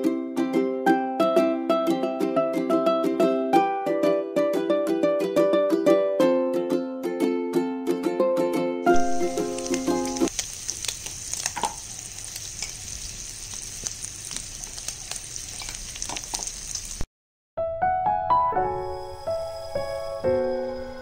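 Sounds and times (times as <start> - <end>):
oil spitting and crackling: 8.9 - 17.0
pork sizzling in a wok: 8.9 - 17.1.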